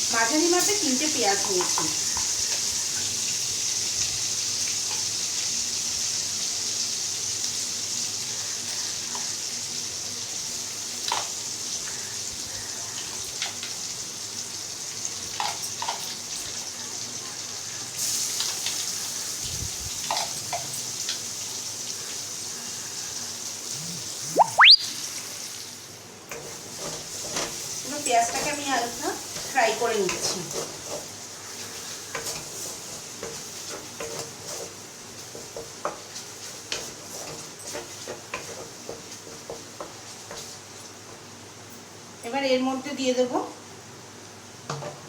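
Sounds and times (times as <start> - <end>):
onions sizzling in oil: 0.0 - 45.0
rising whistle-like sweep: 23.8 - 25.0.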